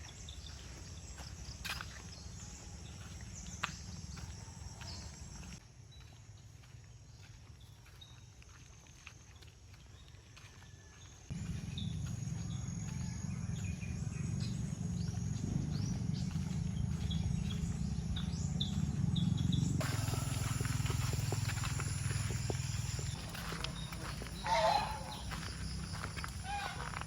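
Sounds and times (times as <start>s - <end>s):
wind rumbling on microphone: 13.0s - 27.0s.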